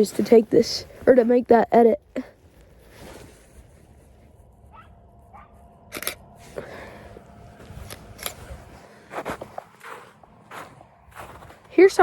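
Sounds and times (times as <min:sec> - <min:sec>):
faint low rumble: 0:00.0 - 0:12.0
camera shutter clicks: 0:05.9 - 0:06.2.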